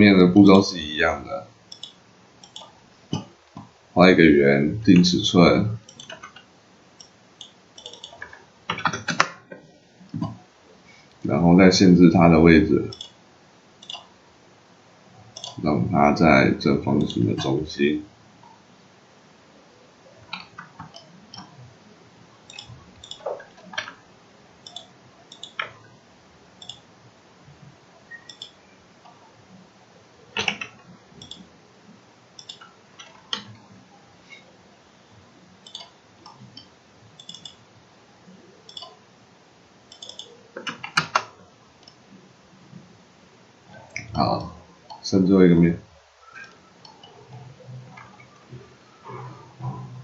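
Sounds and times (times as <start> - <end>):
mouse and keyboard clicks: 1.7 - 3.3, 5.8 - 9.4, 12.9 - 13.2, 13.8 - 14.1, 15.4 - 15.6, 17.0 - 17.5, 22.5 - 24.0, 24.6 - 25.8, 28.2 - 28.6, 30.4 - 31.5, 32.4 - 33.6, 35.6 - 37.6, 38.7 - 39.0, 39.9 - 42.0.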